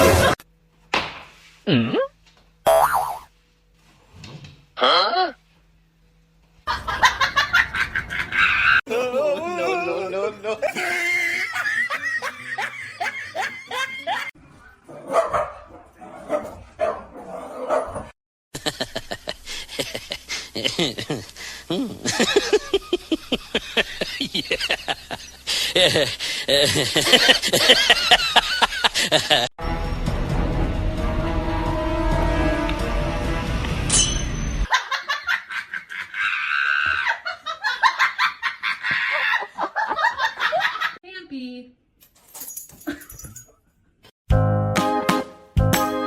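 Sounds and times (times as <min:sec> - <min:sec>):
person laughing high-pitched: 0:06.7 - 0:14.3, 0:18.6 - 0:29.5
music: 0:29.6 - 0:33.9, 0:44.3 - 0:46.0.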